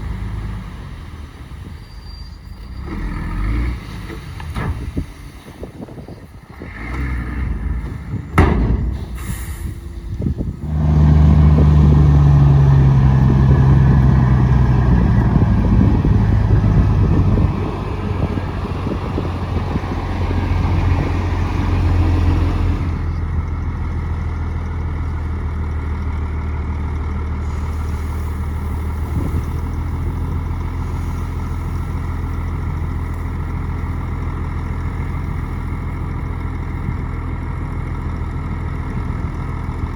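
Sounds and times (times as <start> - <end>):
heavy diesel engine working: 0.0 - 39.9
sharp knocks: 8.3 - 9.2.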